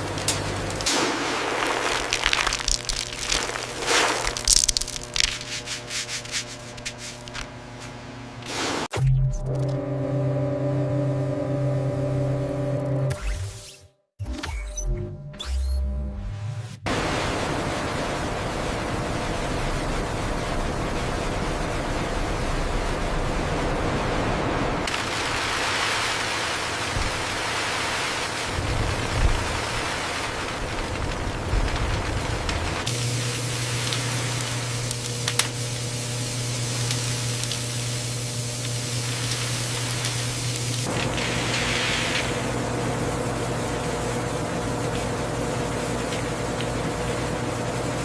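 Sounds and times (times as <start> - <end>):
faint hum: 16.9 - 48.0.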